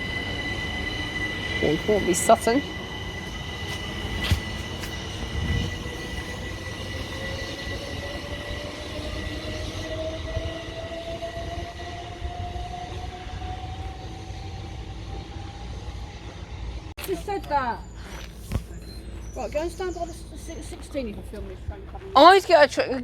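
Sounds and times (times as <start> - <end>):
electric train motor whine: 0.0 - 16.9
wheels rumbling on rail: 0.0 - 18.0, 18.7 - 23.0.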